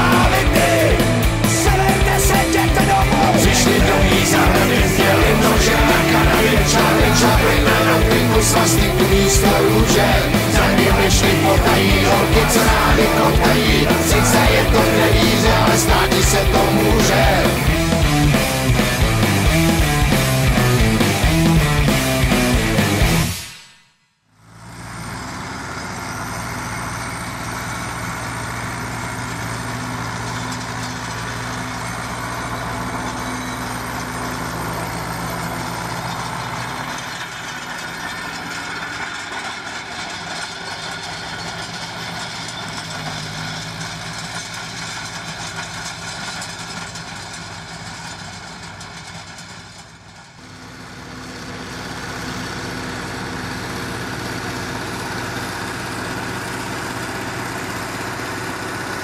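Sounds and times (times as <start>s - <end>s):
tractor diesel engine running: 0.0s - 23.4s, 24.4s - 59.0s.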